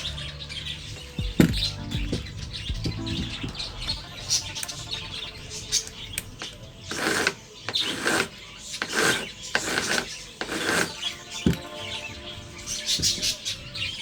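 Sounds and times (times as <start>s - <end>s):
rasping strokes on wood: 6.4s - 13.8s.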